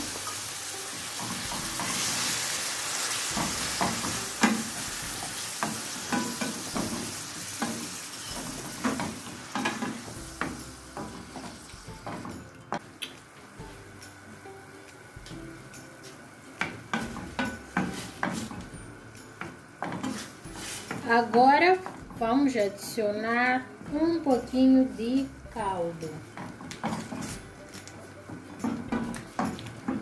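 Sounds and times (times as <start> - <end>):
shrimp sizzling in oil: 0.0 - 22.3
wooden spoon knocking on pan: 3.3 - 12.8, 16.6 - 18.7, 28.3 - 30.0.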